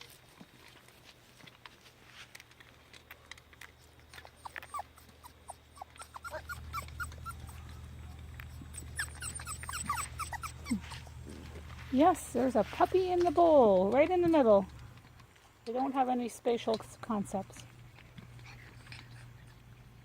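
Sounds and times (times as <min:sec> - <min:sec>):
low steady hum: 0:00.0 - 0:20.0
puppies whimpering and squeaking: 0:04.1 - 0:15.0, 0:18.1 - 0:20.0.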